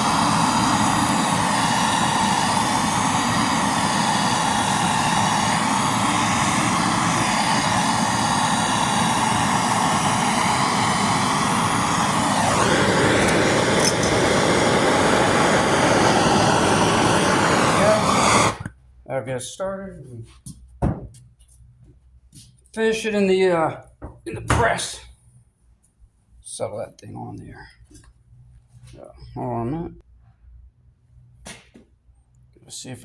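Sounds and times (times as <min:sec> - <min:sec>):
blowtorch flame burning: 0:00.0 - 0:18.7.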